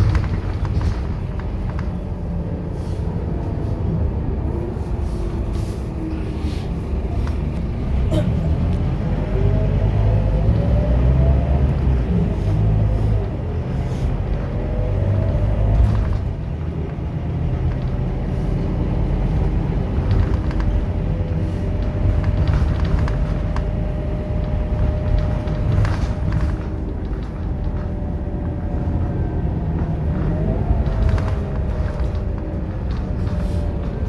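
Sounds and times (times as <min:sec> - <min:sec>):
knocks and rattles: 0:00.0 - 0:02.4, 0:19.2 - 0:34.0
bus engine rumble: 0:00.0 - 0:34.0.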